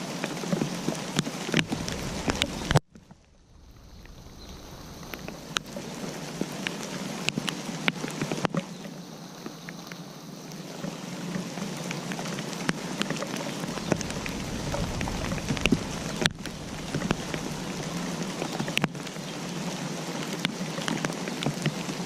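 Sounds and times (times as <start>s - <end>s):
rain drops tapping on surface: 0.0s - 22.0s
low rumble: 1.6s - 6.6s, 13.7s - 19.3s.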